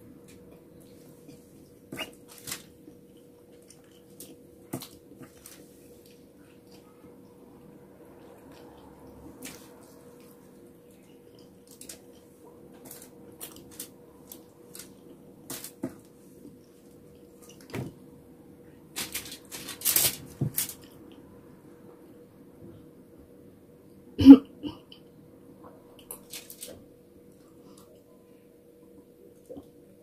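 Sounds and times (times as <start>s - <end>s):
faint steady hum: 0.0s - 30.0s
fingers picking food off foil: 19.0s - 20.9s.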